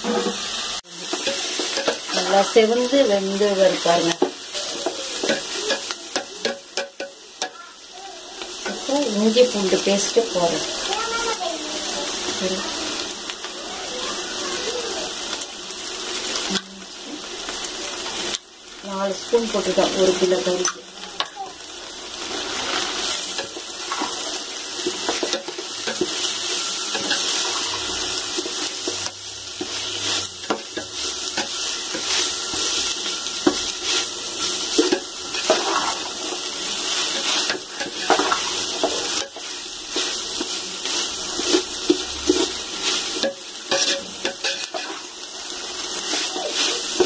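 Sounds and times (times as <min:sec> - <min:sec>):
onions sizzling in hot oil: 0:00.0 - 0:47.0
metal ladle scraping a pot: 0:40.8 - 0:45.1.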